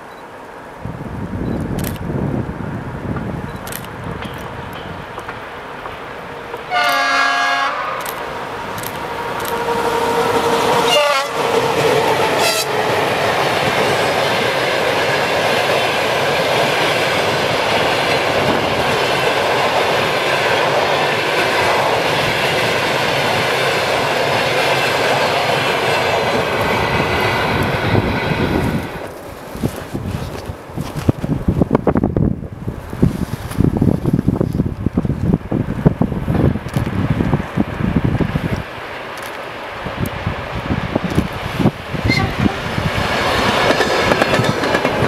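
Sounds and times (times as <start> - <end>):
train wheels clickety-clack: 3.1 - 7.2, 8.0 - 31.3, 41.0 - 45.0
locomotive horn: 6.6 - 11.8, 12.4 - 12.9, 42.0 - 42.7.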